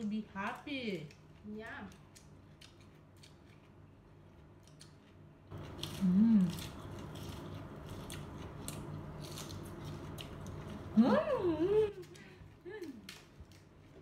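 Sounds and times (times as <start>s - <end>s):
crunching raw vegetables: 0.4s - 11.3s
person humming through full mouth: 6.0s - 6.6s.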